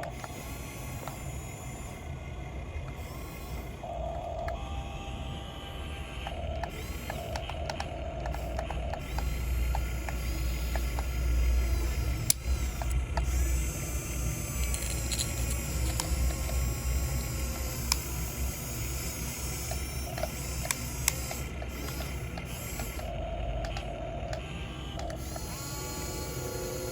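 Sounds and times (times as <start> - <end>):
small electric motors whining: 0.0 - 26.9
steady low hum: 0.0 - 26.9
sharp clicks: 6.2 - 13.4, 19.5 - 25.6.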